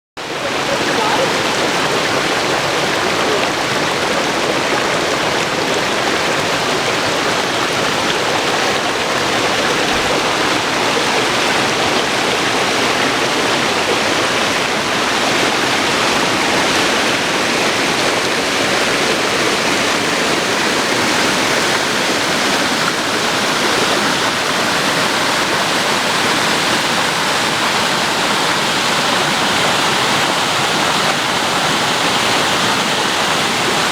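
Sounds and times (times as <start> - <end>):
water rushing down a waterfall: 0.2 - 33.9.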